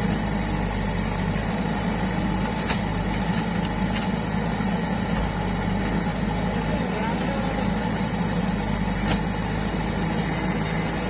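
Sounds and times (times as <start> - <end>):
heavy machinery diesel engine running: 0.0 - 11.0.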